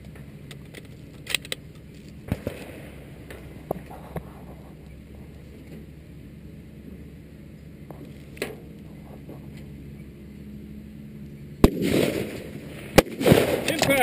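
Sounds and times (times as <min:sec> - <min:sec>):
rifle shot with rolling echo: 0:02.2 - 0:03.6, 0:11.6 - 0:14.0.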